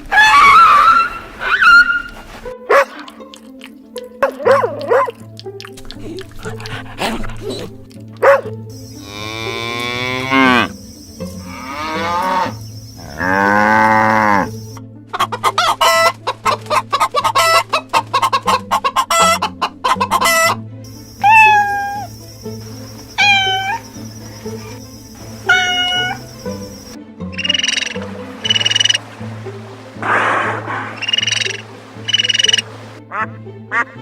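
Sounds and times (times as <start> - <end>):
chickens clucking: 8.2 - 29.1, 30.0 - 33.2
livestock long drawn-out calls: 11.4 - 14.6, 23.0 - 26.4
short falling-pitch calls: 21.2 - 26.6.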